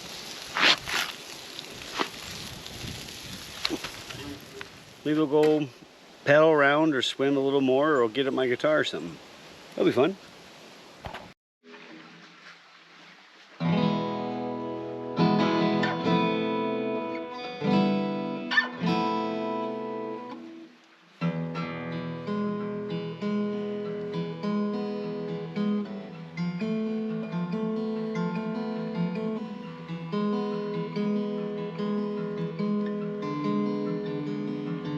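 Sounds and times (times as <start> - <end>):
acoustic guitar chords: 13.6 - 34.9.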